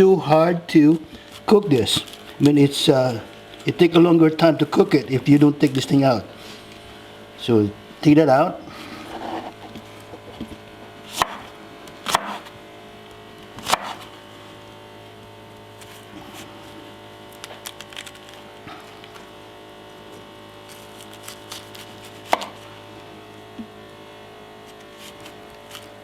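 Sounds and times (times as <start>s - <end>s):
knife chopping on cutting board: 10.2s - 12.5s, 13.6s - 14.0s, 22.2s - 22.6s.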